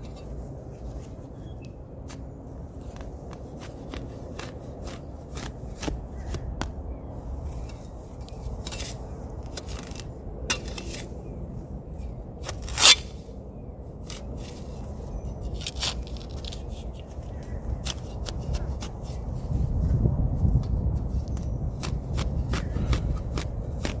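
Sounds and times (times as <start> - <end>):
shovel scraping sandy soil: 0.0 - 6.4, 7.3 - 11.4, 12.4 - 13.3, 14.0 - 19.9, 21.0 - 24.0
shovel clicking on stones: 8.6 - 11.1, 12.4 - 13.1, 15.4 - 17.2.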